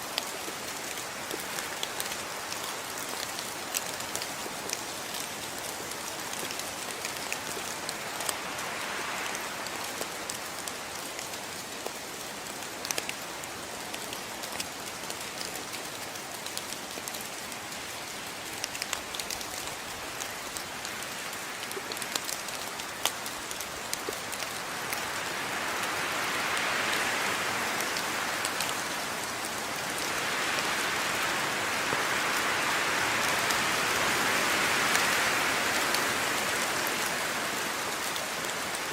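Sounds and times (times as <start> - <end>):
raindrops ticking on a surface: 0.0 - 38.9
steady rain falling: 0.0 - 38.9.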